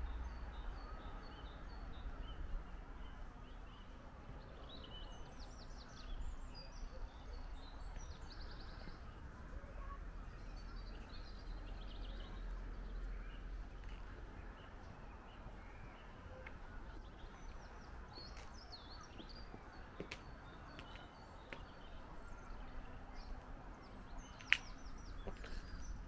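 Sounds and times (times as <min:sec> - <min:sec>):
small songbirds chirping: 0:00.0 - 0:26.0.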